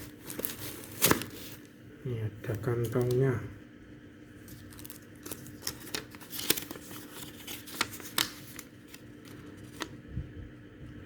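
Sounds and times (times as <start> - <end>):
plastic and paper rustling: 0.0 - 1.7, 4.4 - 10.0
packaging clicks: 4.6 - 9.0.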